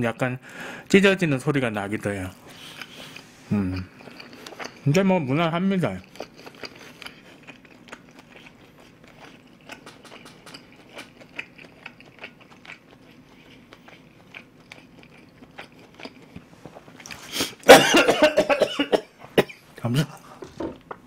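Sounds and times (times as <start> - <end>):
wet chewing mouth clicks: 2.5 - 4.9, 6.0 - 17.2
man coughing: 17.6 - 20.2.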